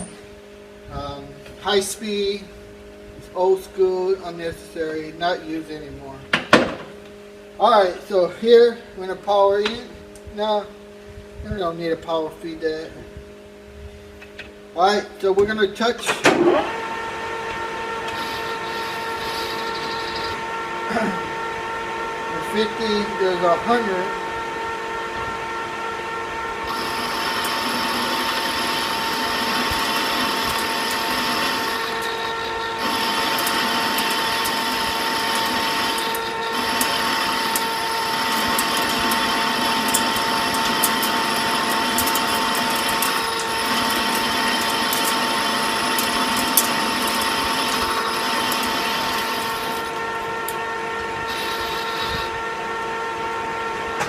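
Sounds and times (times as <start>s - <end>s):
lathe whining: 16.3s - 54.0s.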